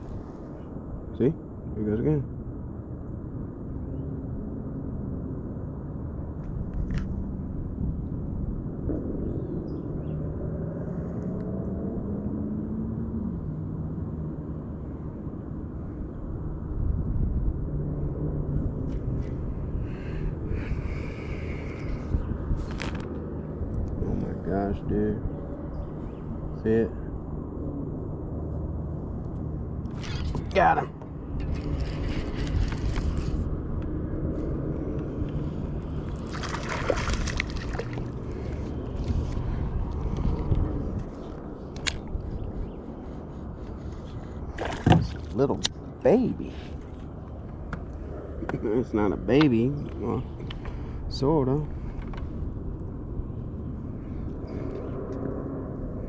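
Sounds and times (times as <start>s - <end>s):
steady low rumble: 0.0s - 56.0s
passing vehicle engine hum: 10.0s - 15.7s
water splashing and sloshing: 31.4s - 33.5s, 35.8s - 42.2s, 44.0s - 45.6s.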